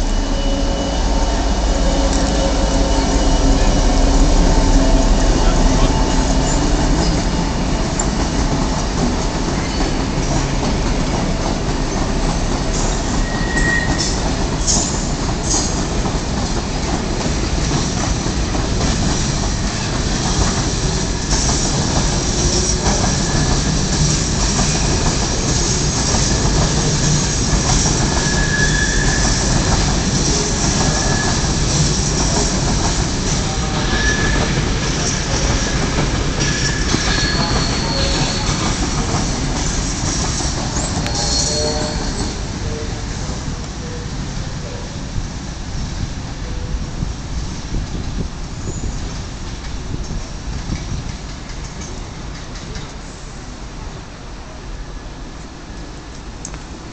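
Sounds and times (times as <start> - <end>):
wheels squealing on rails: 0.0 - 11.2, 11.8 - 45.0, 48.5 - 51.0
freight train wagons rolling: 0.0 - 44.8.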